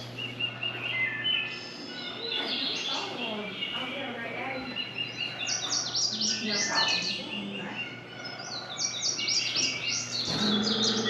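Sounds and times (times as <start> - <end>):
birds chirping: 0.0 - 11.0
low hum: 0.0 - 11.0.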